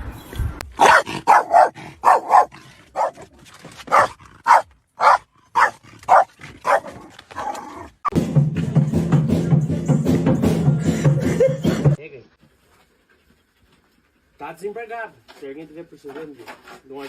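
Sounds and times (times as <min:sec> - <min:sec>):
dog barking: 0:00.8 - 0:03.3, 0:03.9 - 0:07.8.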